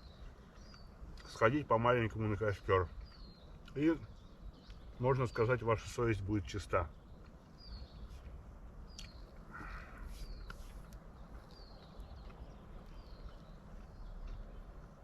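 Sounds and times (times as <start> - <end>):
small bird calling: 0.0 - 15.0.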